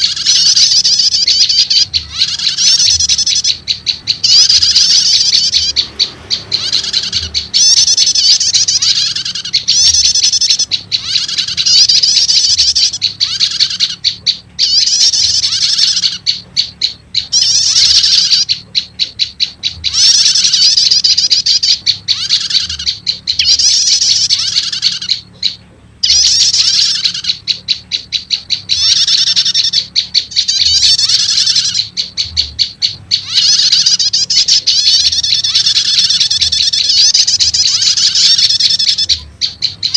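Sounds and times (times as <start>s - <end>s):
faint low hum: 0.0s - 39.9s
warbler rapid chattering calls: 0.0s - 39.9s.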